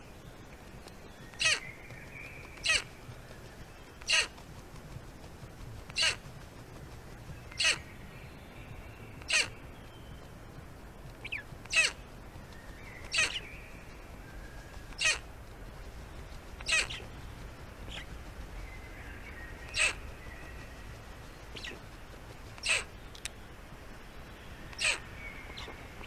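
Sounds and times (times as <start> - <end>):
bird rasping call: 1.3 - 1.9, 2.5 - 3.0, 4.0 - 4.4, 5.9 - 6.3, 7.5 - 7.9, 9.2 - 9.6, 11.2 - 12.1, 12.9 - 13.6, 14.8 - 15.3, 16.6 - 17.2, 19.5 - 20.8, 22.6 - 22.9, 24.7 - 25.7.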